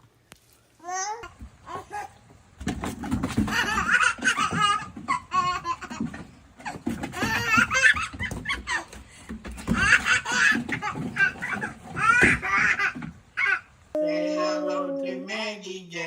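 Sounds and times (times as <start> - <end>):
baby laughing: 3.4 - 9.0, 9.7 - 15.5.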